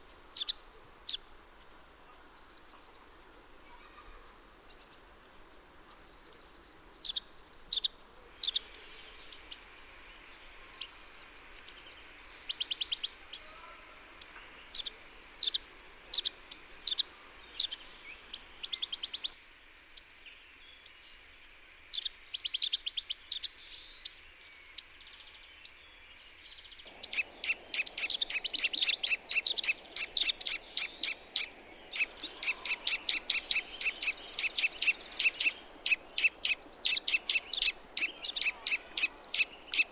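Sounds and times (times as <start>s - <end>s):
songbirds chirping and trilling: 0.0s - 19.4s, 26.2s - 39.9s.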